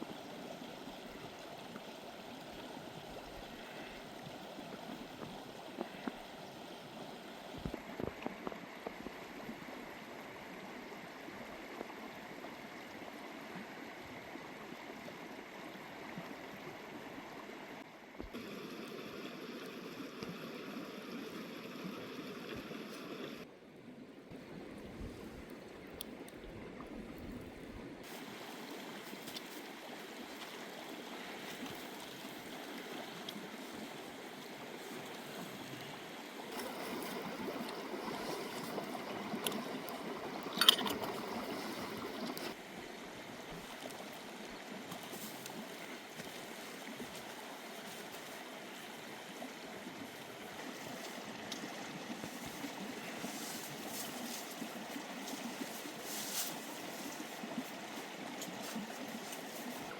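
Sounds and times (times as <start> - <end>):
running water: 24.3 - 59.9.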